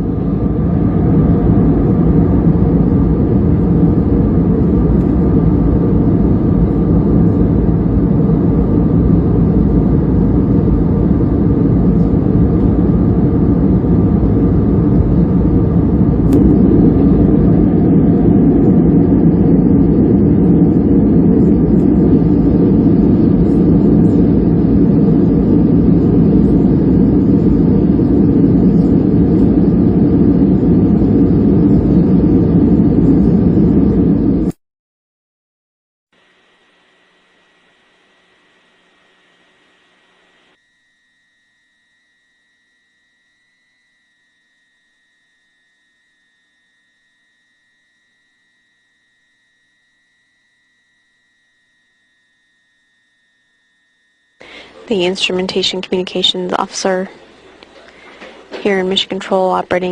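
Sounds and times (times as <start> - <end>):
rushing air: 0.0 - 34.5
jet engines rumbling in cabin: 0.0 - 34.6, 54.4 - 59.9.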